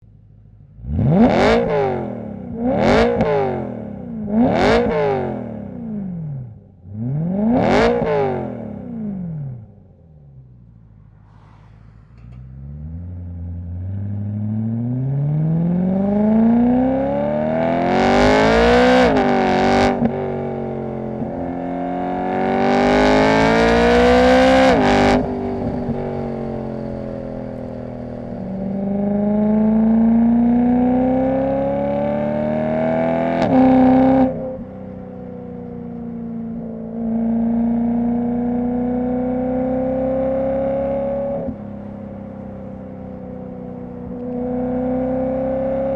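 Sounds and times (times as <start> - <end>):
car engine accelerating through gears: 0.6 - 45.9.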